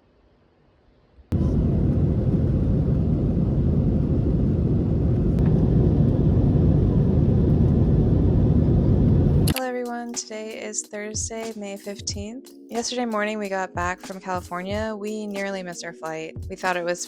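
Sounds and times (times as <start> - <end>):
airliner cabin low rumble: 1.3 - 9.5.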